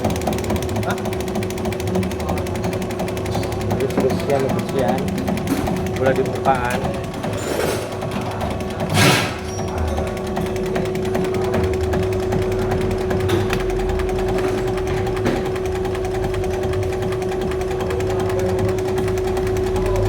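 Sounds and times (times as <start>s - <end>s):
injection pump mechanical clatter: 0.0s - 20.0s.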